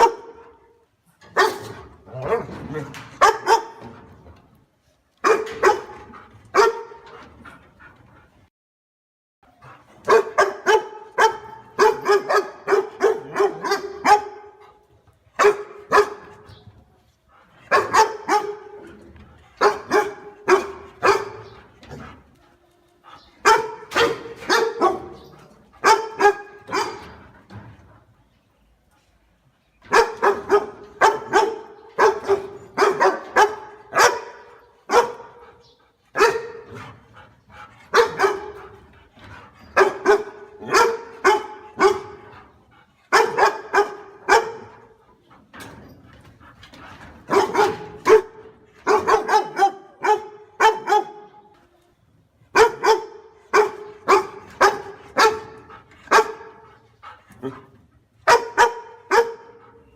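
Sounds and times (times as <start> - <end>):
dog barking fiercely: 0.0 - 0.6, 1.3 - 3.9, 5.2 - 7.0, 10.0 - 14.6, 15.4 - 16.4, 17.7 - 18.8, 19.6 - 21.6, 23.4 - 25.2, 25.8 - 27.2, 29.9 - 35.4, 36.1 - 36.8, 37.9 - 38.8, 39.8 - 42.3, 43.1 - 45.0, 47.3 - 51.4, 52.6 - 56.6, 58.2 - 59.7.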